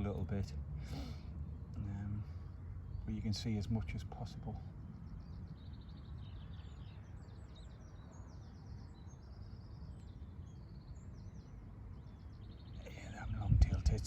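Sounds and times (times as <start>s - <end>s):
songbirds singing and chirping: 0.0s - 14.0s
steady low rumble: 12.8s - 14.0s.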